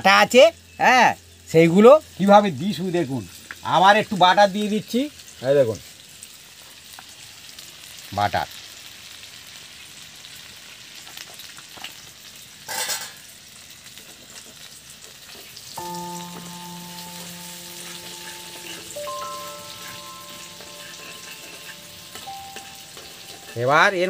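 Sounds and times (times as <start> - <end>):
chicken sizzling in a pan: 0.0 - 24.0
soft background music: 15.8 - 24.0.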